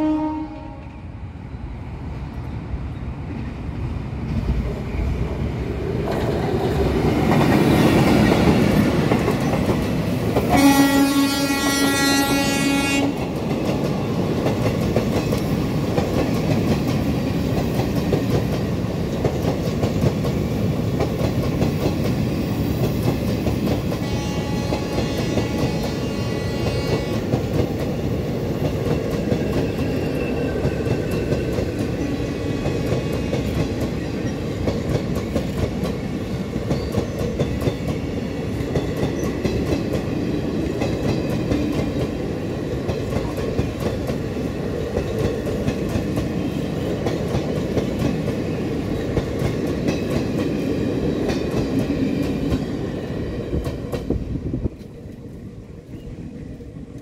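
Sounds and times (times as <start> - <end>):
train horn: 0.0 - 1.1, 10.5 - 13.3, 24.0 - 27.4
passenger train rumble: 0.0 - 57.0.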